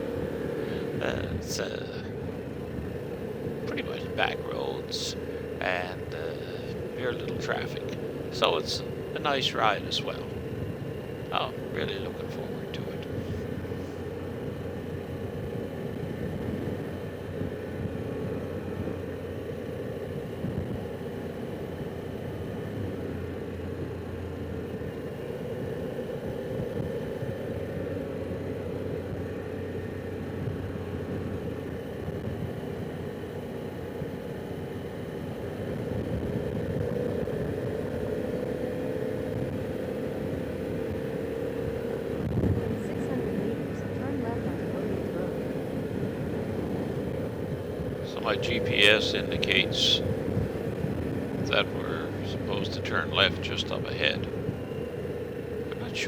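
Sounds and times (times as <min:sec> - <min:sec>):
road noise: 0:00.0 - 0:56.0.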